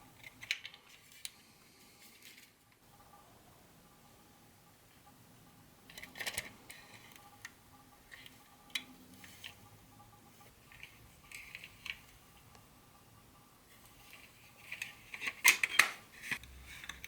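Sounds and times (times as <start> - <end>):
small parts clicking and tapping: 0.2 - 1.4, 5.9 - 9.7, 10.4 - 12.6, 13.8 - 17.0.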